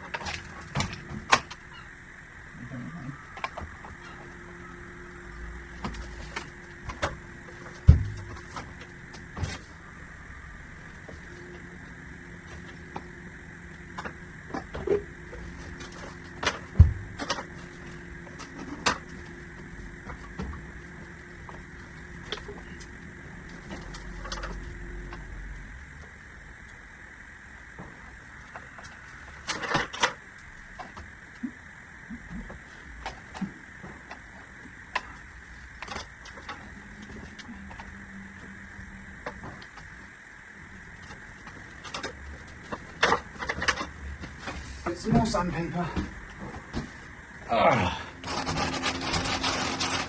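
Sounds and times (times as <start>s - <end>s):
steady low hum: 0.0s - 50.0s
heavy thud: 7.8s - 8.4s.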